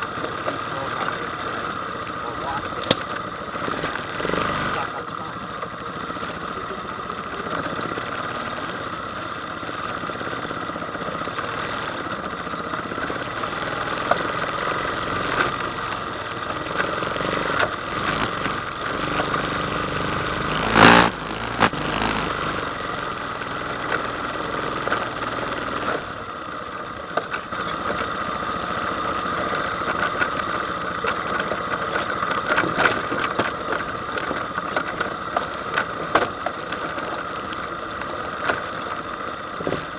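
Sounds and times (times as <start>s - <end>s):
atv engine running: 0.0s - 39.9s
small knocks and clatter: 31.0s - 37.3s.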